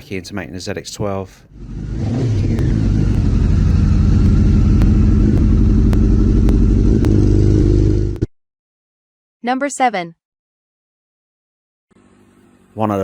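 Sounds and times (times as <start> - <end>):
motorcycle engine running: 1.5 - 8.3.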